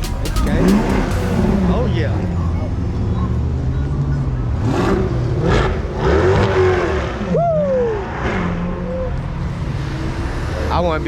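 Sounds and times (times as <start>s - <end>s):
car engine running: 0.0s - 5.5s
engine revving: 0.0s - 11.0s.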